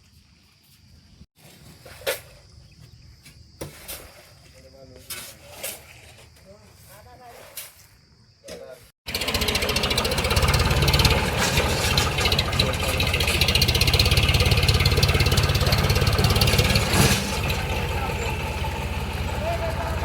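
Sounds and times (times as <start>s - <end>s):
short engine knock: 9.1s - 20.0s
tractor diesel engine running: 9.1s - 20.0s.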